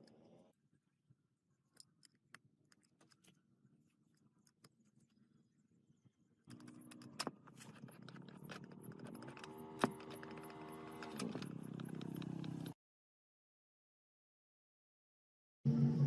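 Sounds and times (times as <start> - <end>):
metallic clicks and rattles: 6.5 - 12.8
motor running: 7.8 - 12.8.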